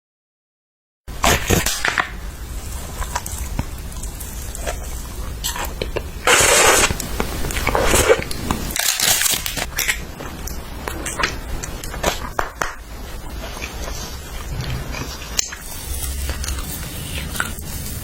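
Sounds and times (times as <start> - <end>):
biting and chewing: 1.2 - 18.0
crunchy clicks: 1.2 - 18.0
loud noisy bursts: 14.3 - 18.0.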